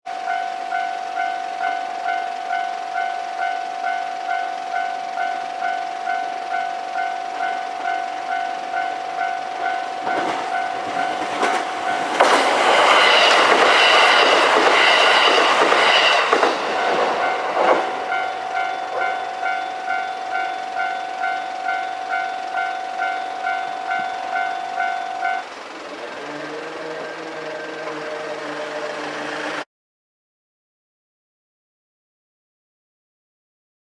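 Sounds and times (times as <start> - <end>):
level crossing bell dinging: 0.1 - 12.3, 16.8 - 25.5
diesel train rushing past: 0.2 - 29.6.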